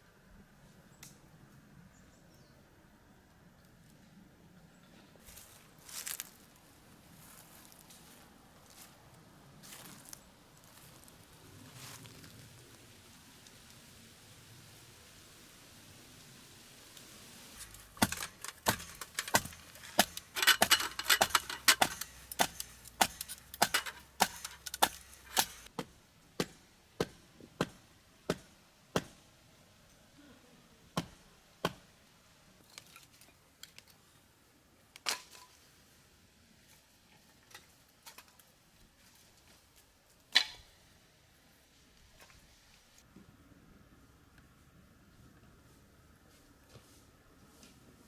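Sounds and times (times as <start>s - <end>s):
sharp clicks and knocks: 17.6s - 25.7s.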